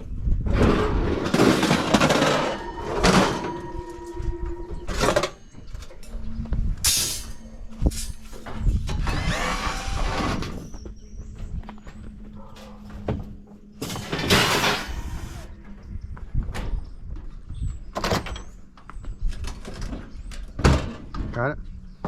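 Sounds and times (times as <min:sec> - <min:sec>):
sheet metal scraping and clattering: 0:00.5 - 0:05.5.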